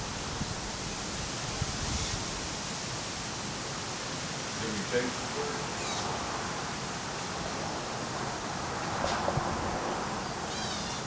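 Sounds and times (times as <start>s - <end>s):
steady rushing wind noise: 0.0s - 10.5s.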